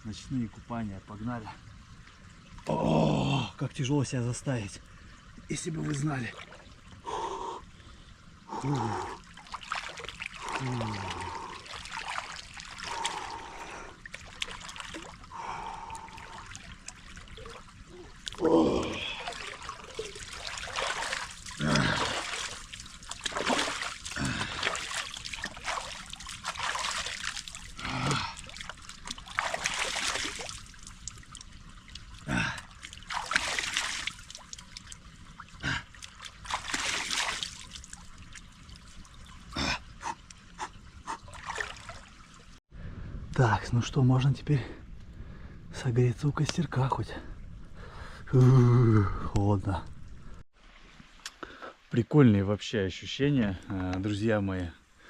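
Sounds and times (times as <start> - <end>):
trickle of running water: 0.0 - 42.6
water splashing: 5.4 - 42.6
person gasping and grunting: 8.5 - 9.2, 10.4 - 11.6, 18.4 - 19.4, 21.6 - 22.4, 24.1 - 24.8, 27.8 - 28.5, 32.3 - 32.7, 35.6 - 35.9.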